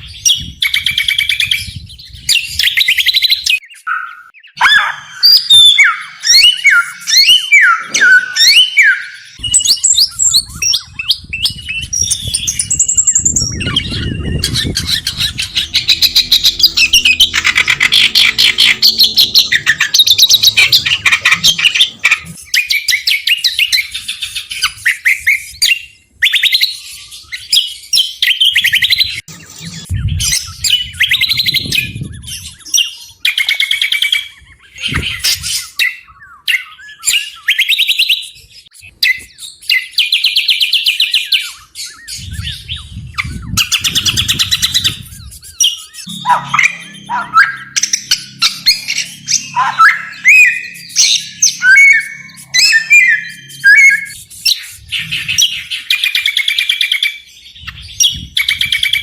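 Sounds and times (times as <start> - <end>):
songbirds chattering trills: 0.0 - 59.0
bird downward-slurred whistles: 2.6 - 18.7, 40.4 - 56.9.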